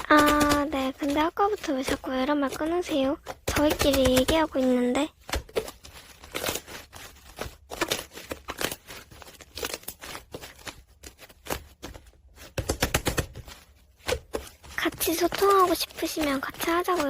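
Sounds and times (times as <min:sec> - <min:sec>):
slime crackling and popping: 0:12.6 - 0:17.0.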